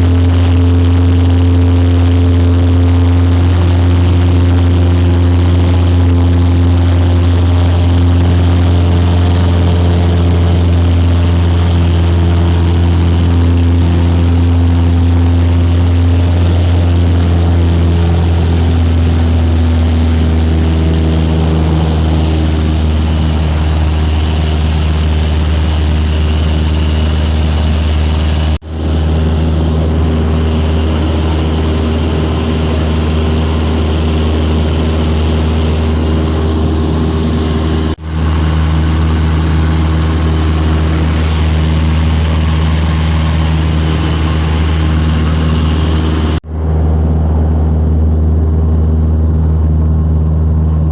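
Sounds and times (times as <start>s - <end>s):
light aircraft engine and propeller: 0.0s - 50.9s.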